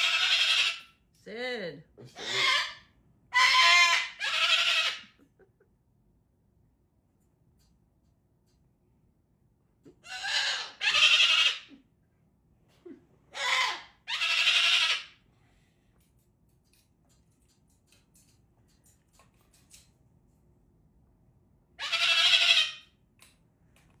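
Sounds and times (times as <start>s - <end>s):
parrot harsh calls: 0.0s - 1.0s, 2.2s - 5.2s, 10.0s - 11.8s, 13.3s - 15.2s, 21.8s - 22.9s.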